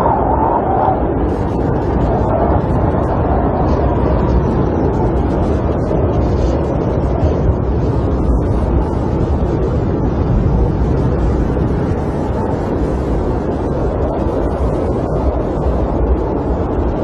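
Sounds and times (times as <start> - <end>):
snowstorm wind blowing: 0.0 - 17.0.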